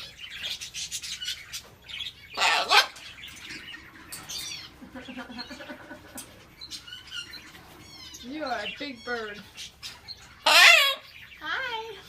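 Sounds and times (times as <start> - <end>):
parrot squawk: 2.3 - 3.0, 10.4 - 11.2.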